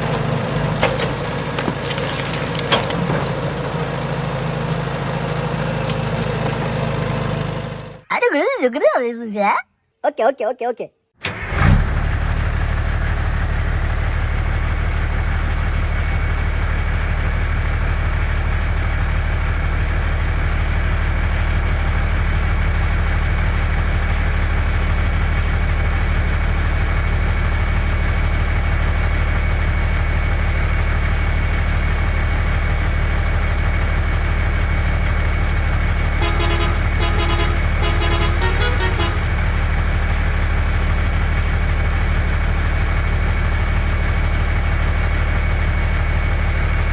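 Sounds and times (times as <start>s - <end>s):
low truck engine drone: 0.0s - 8.1s, 11.2s - 46.9s
horn beeping in rapid pulses: 36.2s - 39.6s.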